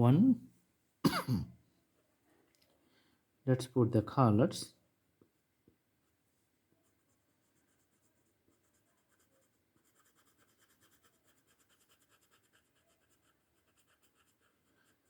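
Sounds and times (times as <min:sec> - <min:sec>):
drawing tool scratching paper: 0:07.0 - 0:15.0.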